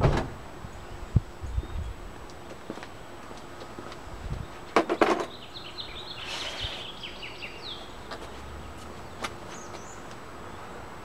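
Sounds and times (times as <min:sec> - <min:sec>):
bird chirping: 0:04.4 - 0:10.7.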